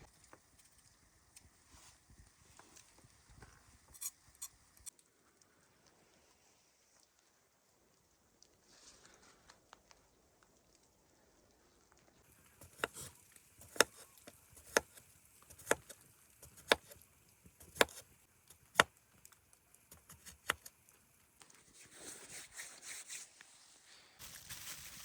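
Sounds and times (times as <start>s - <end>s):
soft rustling: 8.4s - 10.1s.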